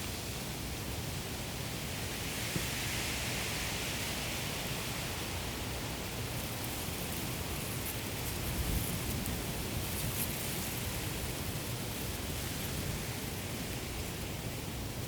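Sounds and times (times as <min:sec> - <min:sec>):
low rumble of wind: 0:04.4 - 0:15.0.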